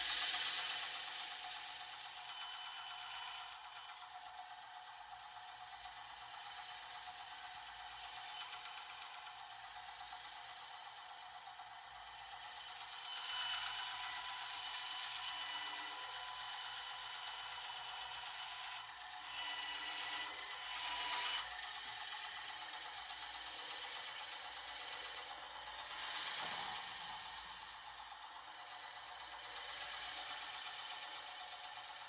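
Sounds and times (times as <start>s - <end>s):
blade cutting workpiece: 0.0s - 32.0s
bandsaw whine: 12.7s - 31.4s.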